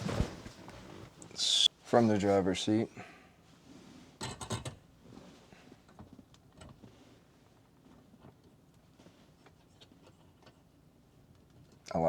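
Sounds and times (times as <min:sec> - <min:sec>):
small clicks and rustles: 0:04.2 - 0:11.9.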